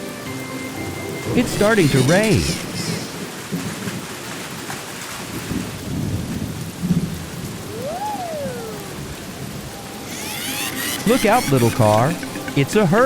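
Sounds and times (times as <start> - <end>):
steady rain: 2.7 - 10.1.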